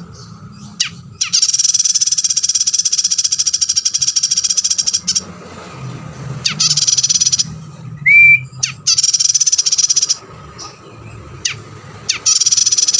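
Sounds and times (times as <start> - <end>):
buzzy high bird trills: 0.0 - 5.3, 6.4 - 12.9
rising bird whistle: 6.5 - 10.2.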